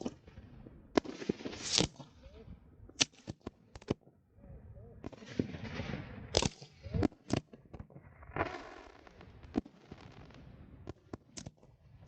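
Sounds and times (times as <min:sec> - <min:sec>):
fireworks bangs: 0:00.0 - 0:02.3, 0:05.0 - 0:12.0
hissing crackle: 0:01.0 - 0:02.1, 0:05.1 - 0:07.4.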